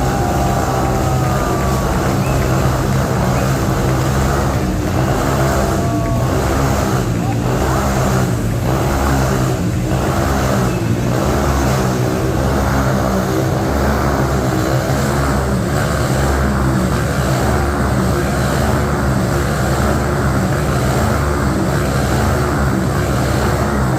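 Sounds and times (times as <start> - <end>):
dirt bike engine running: 0.0 - 23.9.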